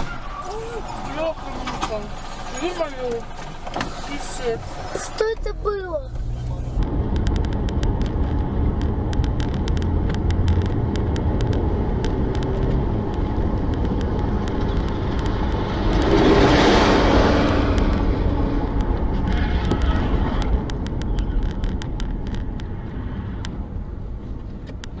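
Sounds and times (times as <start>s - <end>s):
car engine and road rumble: 0.0s - 25.0s
sharp clicks: 7.1s - 16.6s, 17.2s - 22.8s.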